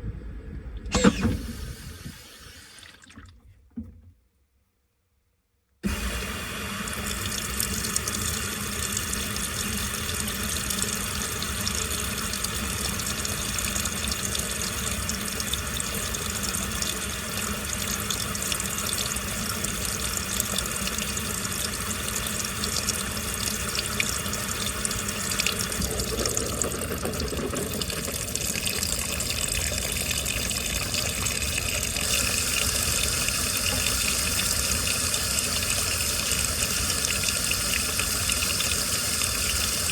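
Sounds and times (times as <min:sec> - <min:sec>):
washing machine water sloshing: 0:00.9 - 0:04.0, 0:20.4 - 0:37.0.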